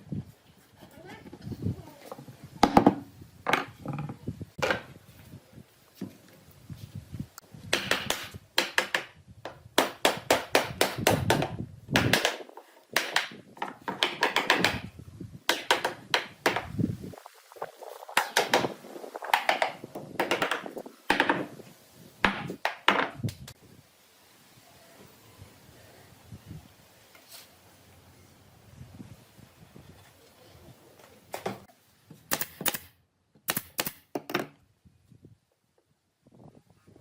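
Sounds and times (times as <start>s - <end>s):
knocking of hard objects: 2.6s - 4.9s, 7.7s - 14.9s, 15.5s - 16.8s, 18.1s - 21.6s, 22.2s - 23.3s.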